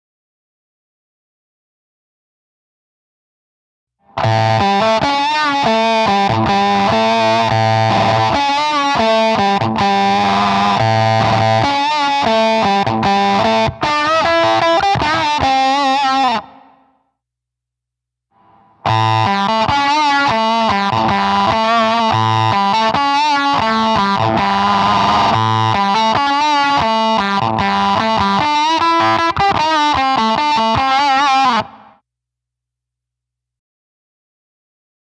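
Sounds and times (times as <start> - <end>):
distorted electric guitar riff: 4.1 - 17.0, 18.4 - 32.0.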